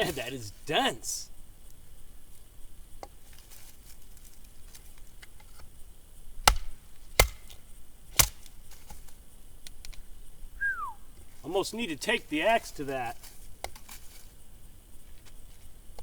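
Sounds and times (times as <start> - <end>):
axe blows splitting log: 6.5 - 7.6.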